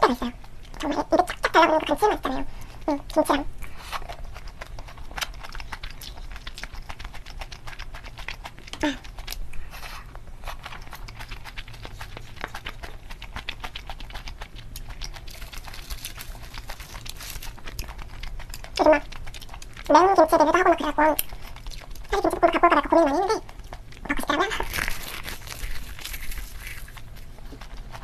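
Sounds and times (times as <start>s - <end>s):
wet chewing and mouth sounds: 0.0s - 28.0s
dry seaweed sheets crackling: 15.1s - 17.8s, 24.5s - 27.3s.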